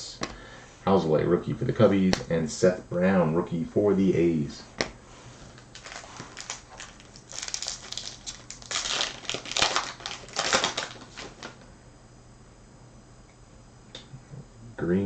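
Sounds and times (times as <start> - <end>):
foil wrapper tearing and crinkling: 5.6 - 11.6.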